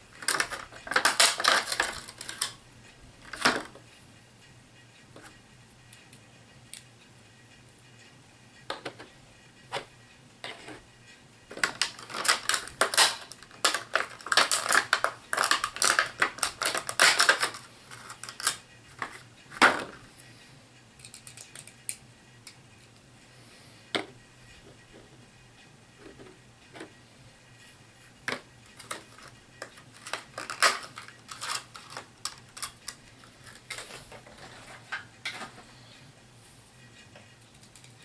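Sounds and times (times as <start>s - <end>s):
plastic clicking and crackling: 0.2s - 2.6s, 11.5s - 20.0s, 21.0s - 22.6s, 28.3s - 35.5s.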